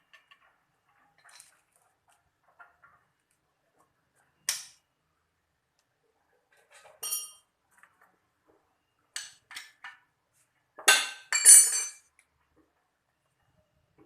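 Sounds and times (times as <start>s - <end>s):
metal tools clinking: 6.8s - 7.4s, 10.9s - 12.0s.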